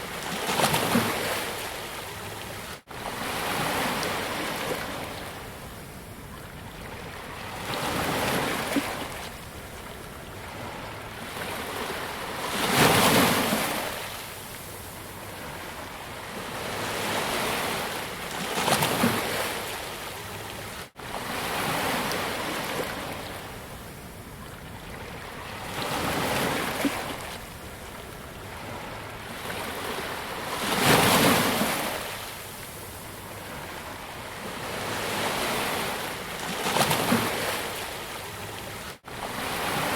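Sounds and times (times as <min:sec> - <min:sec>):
sea waves breaking on beach: 0:20.9 - 0:23.9, 0:25.0 - 0:39.9.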